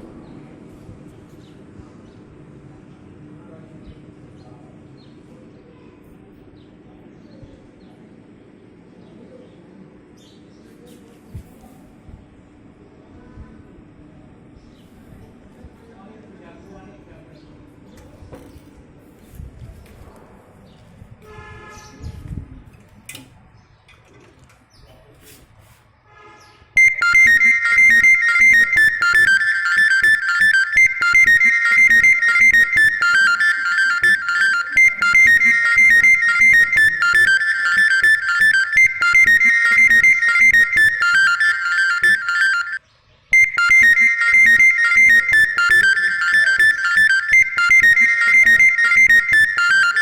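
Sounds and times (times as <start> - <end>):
high repeating melody: 26.8 - 50.0.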